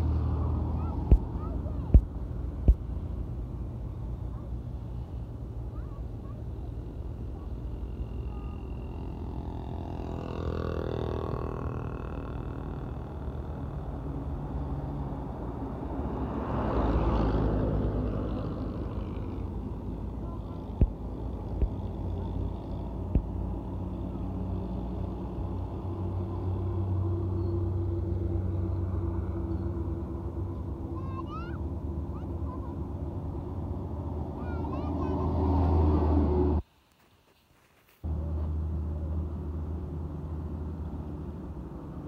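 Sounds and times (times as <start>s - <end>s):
truck engine running: 0.0s - 15.9s
road noise: 0.0s - 42.0s.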